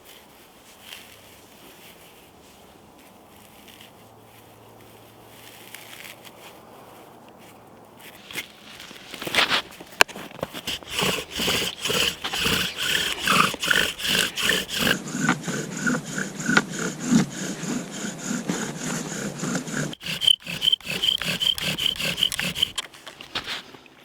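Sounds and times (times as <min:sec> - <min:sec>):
bow drill rubbing and squeaking: 0:08.2 - 0:23.6.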